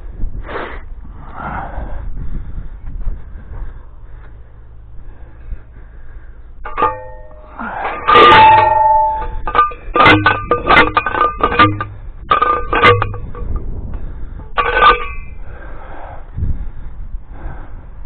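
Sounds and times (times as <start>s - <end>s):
metal posts clanging: 6.6s - 15.7s.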